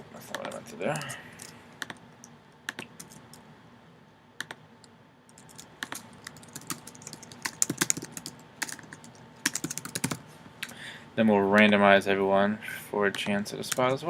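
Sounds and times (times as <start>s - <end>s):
computer keyboard typing: 2.7s - 3.4s, 5.3s - 10.2s.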